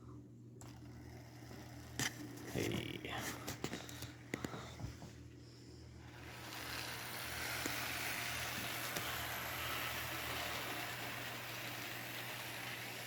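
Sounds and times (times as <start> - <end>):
model train motor whirring: 0.6 - 3.0, 6.0 - 13.0.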